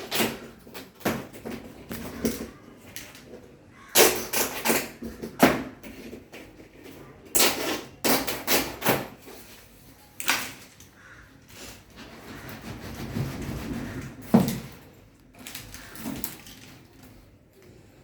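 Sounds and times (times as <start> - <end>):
hard objects knocking: 12.3 - 14.9.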